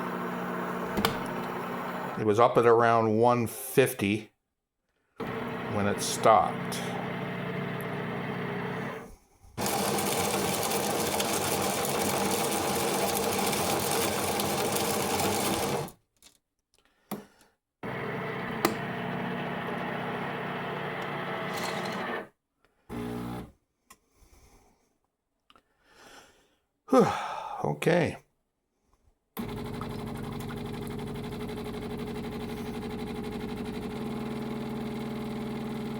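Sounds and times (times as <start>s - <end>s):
coffee machine buzzing: 0.0s - 2.2s, 5.2s - 16.0s, 17.8s - 22.3s, 22.9s - 23.5s, 29.4s - 35.9s.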